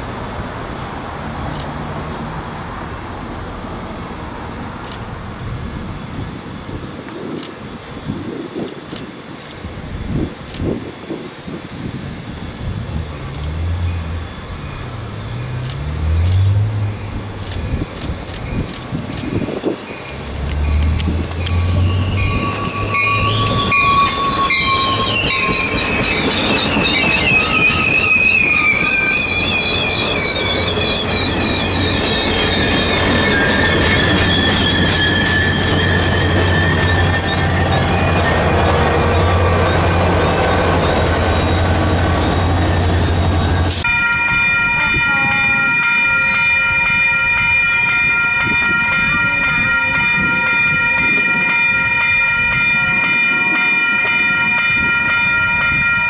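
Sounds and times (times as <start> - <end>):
diesel locomotive drone: 0.0 - 56.0
train wheels squealing: 19.3 - 44.3.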